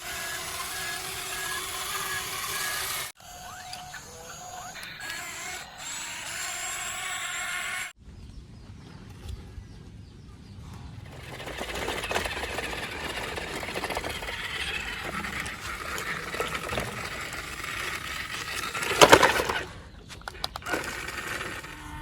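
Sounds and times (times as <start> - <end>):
toy motor and gears whirring: 0.0 - 8.0, 11.1 - 22.0
loud clatter: 11.1 - 22.0.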